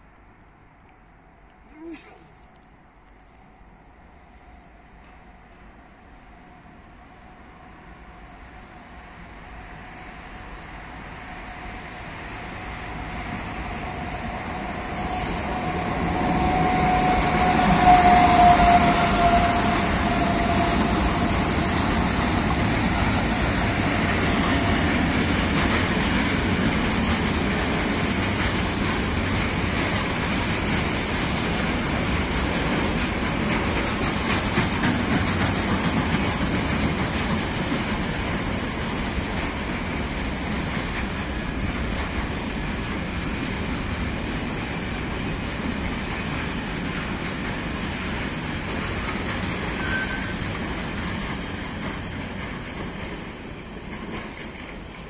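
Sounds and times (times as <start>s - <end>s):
electric locomotive whine: 2.5s - 55.0s
freight wagons rumbling: 15.5s - 55.0s
wheel clatter over rail joints: 21.6s - 55.0s.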